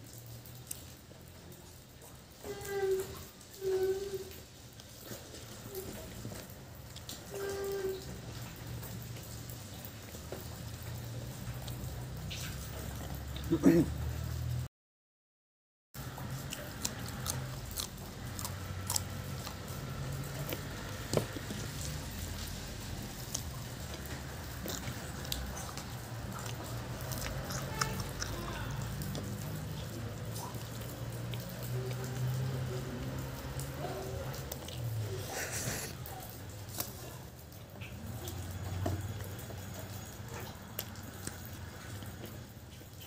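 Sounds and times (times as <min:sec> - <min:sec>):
mouth clicks and crunches: 0:16.1 - 0:32.4, 0:33.0 - 0:36.0
person chewing: 0:16.1 - 0:36.0.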